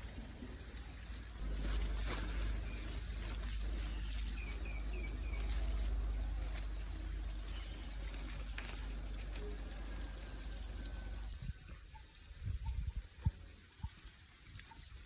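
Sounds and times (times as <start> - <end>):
brief rustle: 1.5 - 4.5
wind buffeting microphone: 11.3 - 13.6.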